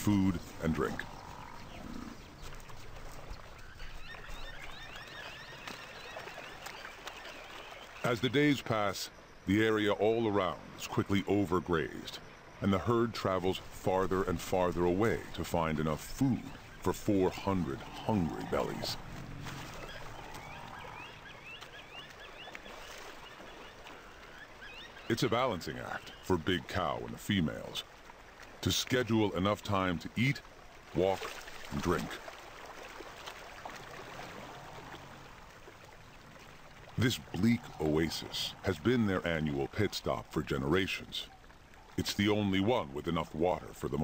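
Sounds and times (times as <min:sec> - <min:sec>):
small birds chirping: 0:00.0 - 0:32.2.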